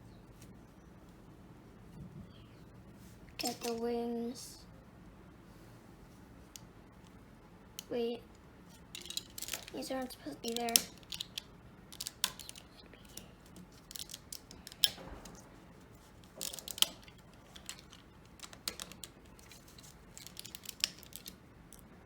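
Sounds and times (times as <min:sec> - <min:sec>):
plastic bricks clicking and rattling: 0:08.8 - 0:15.4, 0:16.2 - 0:21.9.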